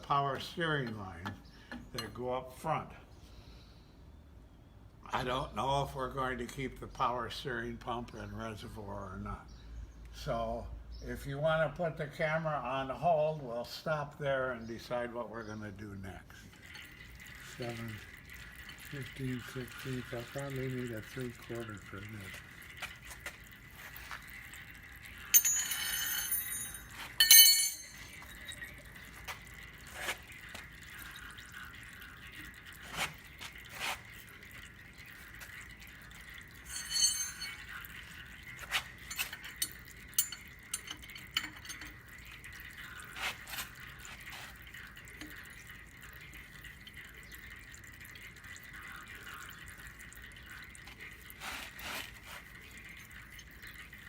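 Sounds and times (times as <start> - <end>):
loud ringing metal clanks: 25.3 - 28.2, 36.7 - 37.7
metal tools clinking: 25.3 - 28.9, 36.6 - 37.8, 38.6 - 42.0.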